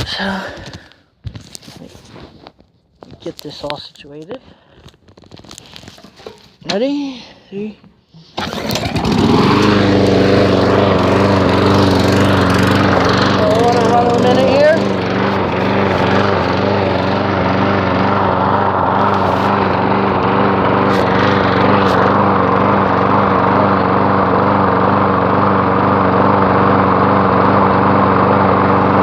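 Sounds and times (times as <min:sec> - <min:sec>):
lawn mower engine running: 0:08.2 - 0:29.0.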